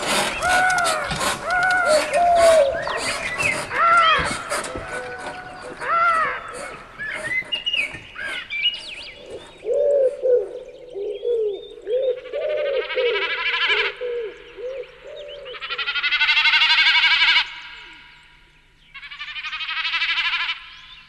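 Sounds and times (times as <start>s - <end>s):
loud rapid high bird trills: 0.0s - 9.6s
birds chirping and whistling: 0.0s - 16.0s, 20.6s - 21.0s
low evenly repeated bird notes: 0.0s - 21.0s.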